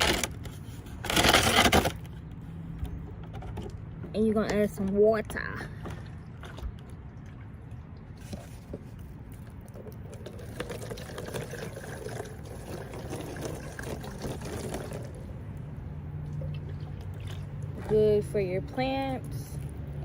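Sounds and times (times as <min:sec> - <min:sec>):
water pouring into plastic jar: 0:06.0 - 0:15.6.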